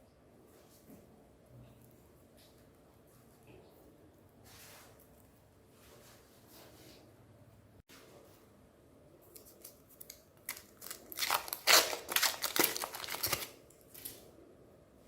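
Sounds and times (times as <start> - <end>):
ice cream bar crackling in grinder: 10.5 - 13.6.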